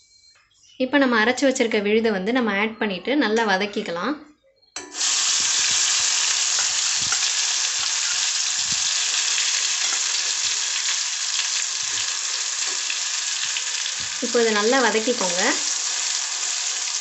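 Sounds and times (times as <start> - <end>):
spatula scraping: 4.8 - 10.6
paste sizzling in hot oil: 4.8 - 17.0.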